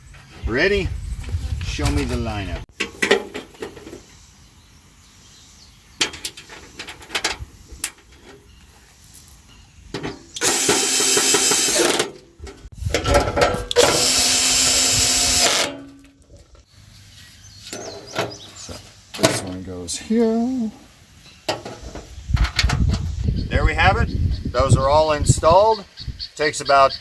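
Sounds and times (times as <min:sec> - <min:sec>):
clicks and knocks handling parts: 0:06.0 - 0:08.5, 0:09.9 - 0:14.1
power drill driving screws: 0:10.4 - 0:12.1, 0:13.7 - 0:15.8.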